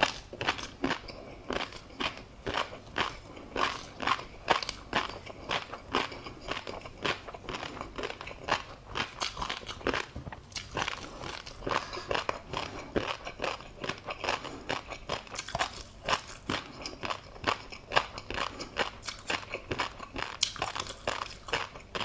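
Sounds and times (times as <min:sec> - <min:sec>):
crunchy chewing: 0:00.0 - 0:22.0.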